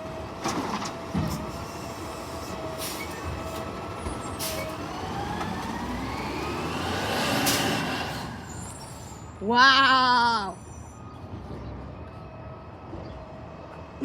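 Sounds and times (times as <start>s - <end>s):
garbage truck engine speeding up: 0.1s - 9.4s.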